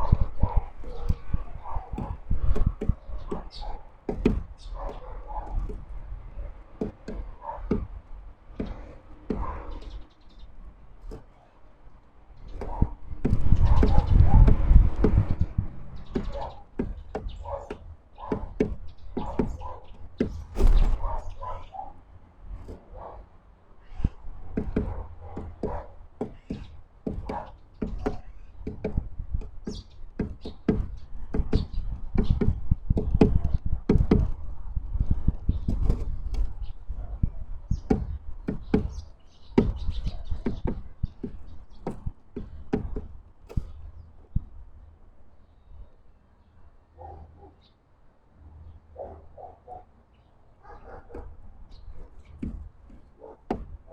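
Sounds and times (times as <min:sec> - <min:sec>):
birds tapping and knocking: 0:00.0 - 0:45.9, 0:50.7 - 0:53.9
heavy thump: 0:20.2 - 0:21.3.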